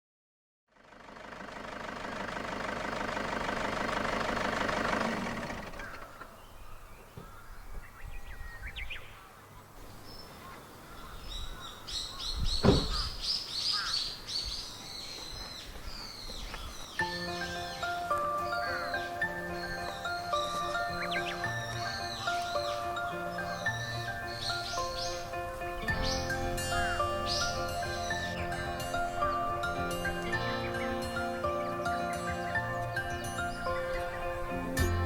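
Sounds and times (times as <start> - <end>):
small birds chirping: 2.1 - 35.0.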